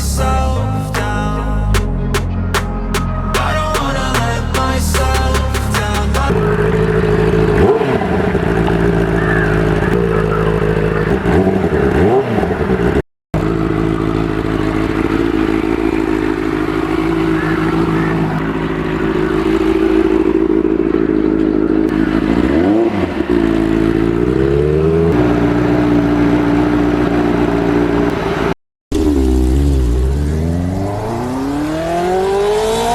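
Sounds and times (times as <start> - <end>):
motorcycle engine running: 13.4 - 28.0.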